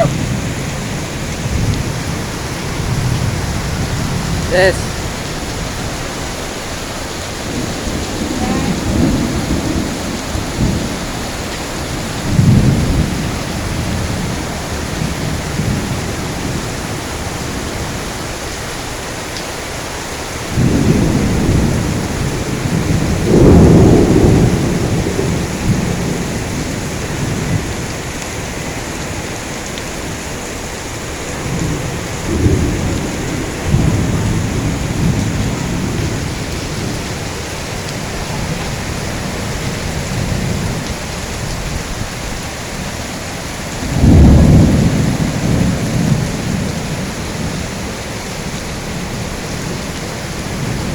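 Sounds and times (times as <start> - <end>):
thunder rumbling: 0.0 - 18.5, 20.4 - 27.8, 31.0 - 50.9
heavy rain falling: 0.0 - 50.9.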